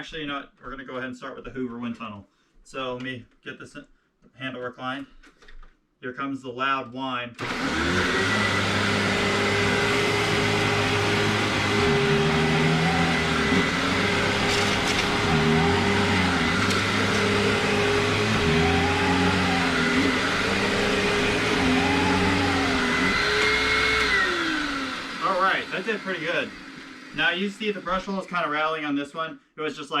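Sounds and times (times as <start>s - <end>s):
vacuum cleaner whining: 7.4s - 28.7s.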